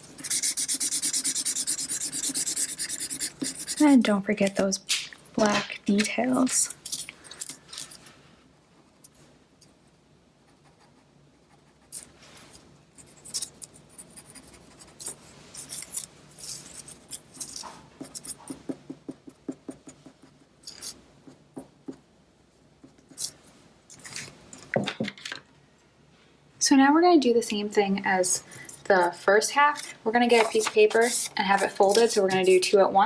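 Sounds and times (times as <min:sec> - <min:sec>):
pen scratching on paper: 0:00.2 - 0:04.1, 0:16.7 - 0:22.0, 0:29.8 - 0:32.7.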